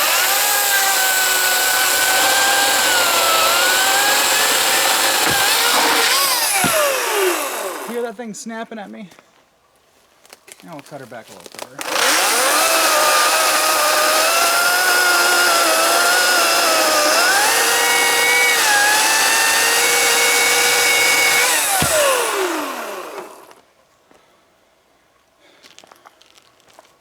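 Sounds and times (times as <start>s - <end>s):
chainsaw cutting branch: 0.0s - 8.0s, 11.8s - 23.6s.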